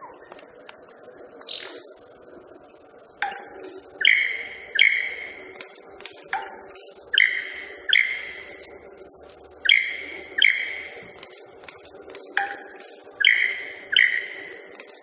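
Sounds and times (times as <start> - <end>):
bird wing ringing tones: 3.1 - 15.0.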